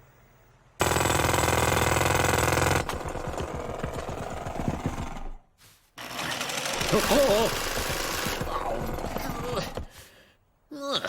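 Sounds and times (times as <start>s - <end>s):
machine rapid rattling: 6.0s - 9.6s.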